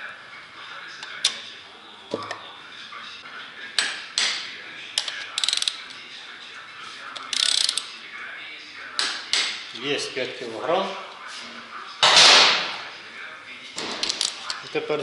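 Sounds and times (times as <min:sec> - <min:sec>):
ratchet wrench clicking: 0:05.0 - 0:05.8, 0:07.3 - 0:07.9, 0:14.0 - 0:14.5.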